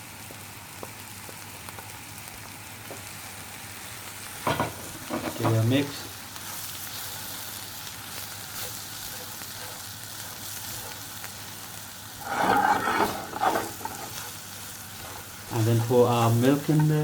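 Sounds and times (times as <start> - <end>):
onions sizzling in butter: 0.0 - 17.0.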